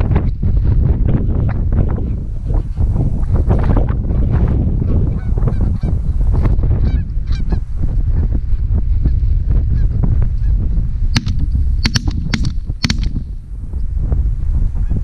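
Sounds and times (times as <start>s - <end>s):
sharp clicks: 11.2s - 13.3s.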